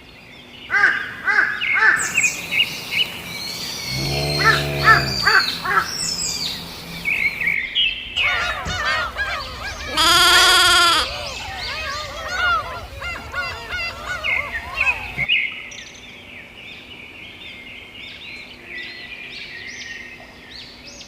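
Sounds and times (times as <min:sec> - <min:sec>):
birds calling: 0:00.5 - 0:15.3.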